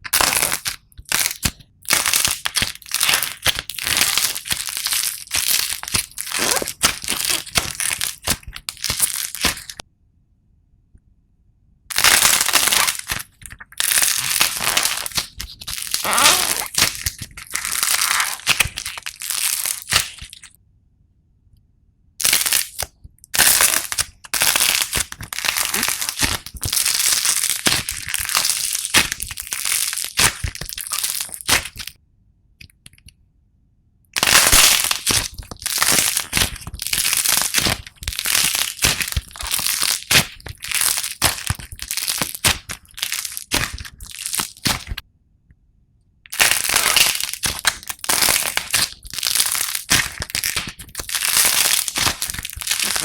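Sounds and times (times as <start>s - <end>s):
slime crackling and popping: 0.0s - 9.8s, 11.9s - 20.6s, 22.2s - 32.0s, 34.2s - 45.0s, 46.3s - 53.0s.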